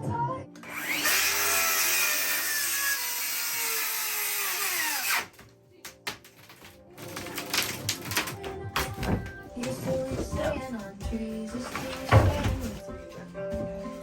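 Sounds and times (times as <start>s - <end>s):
power tool cutting wall panel: 0.6s - 5.4s.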